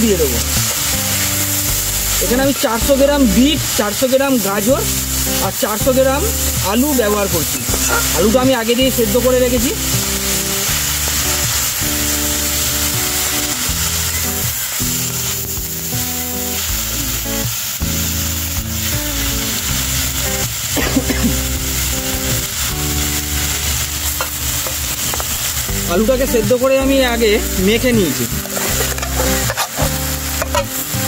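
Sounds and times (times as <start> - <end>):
vegetables sizzling in a wok: 0.0 - 31.0
metal spatula stirring: 28.3 - 30.8.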